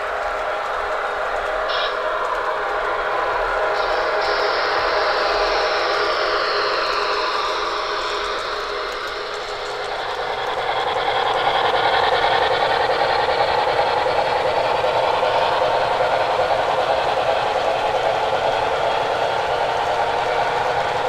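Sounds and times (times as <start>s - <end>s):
model train whirring on track: 0.0s - 21.0s.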